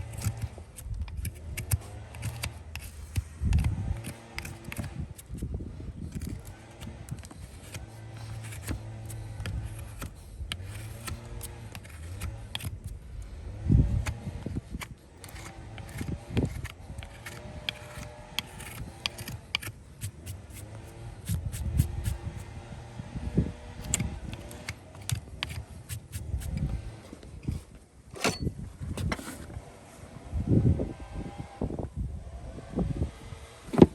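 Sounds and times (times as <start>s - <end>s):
hand tools clicking on hoof: 0.0s - 5.5s, 6.1s - 13.3s, 13.9s - 22.5s, 23.8s - 26.9s.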